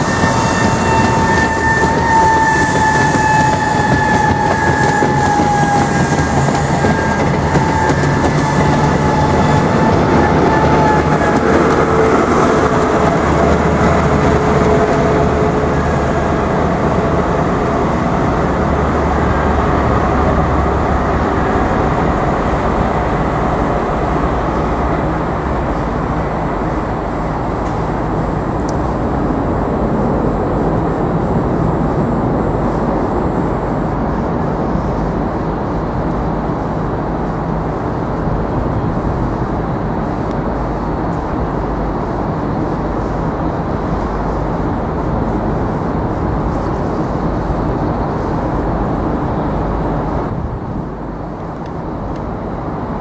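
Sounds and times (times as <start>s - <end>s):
high whining tones: 0.0s - 17.0s
train wheel and rail rush: 0.0s - 53.0s.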